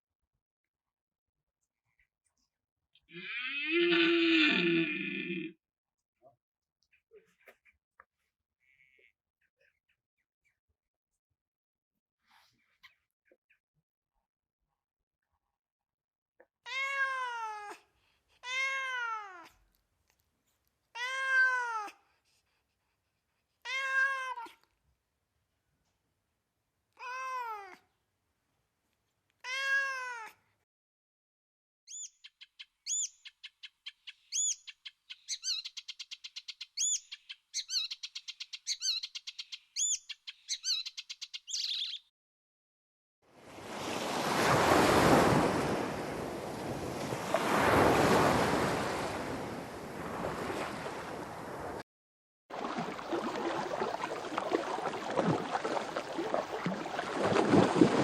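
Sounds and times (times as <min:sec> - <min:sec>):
cat meowing: 0:16.7 - 0:17.8, 0:18.4 - 0:19.5, 0:21.0 - 0:22.0, 0:23.6 - 0:24.6, 0:27.0 - 0:27.8, 0:29.4 - 0:30.4.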